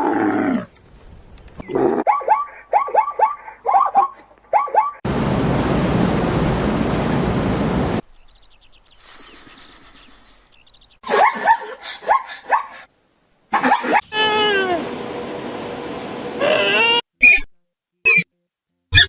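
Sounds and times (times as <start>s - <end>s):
zebra barking yelps: 2.0s - 5.0s, 11.0s - 12.9s, 13.5s - 14.2s, 16.5s - 17.5s.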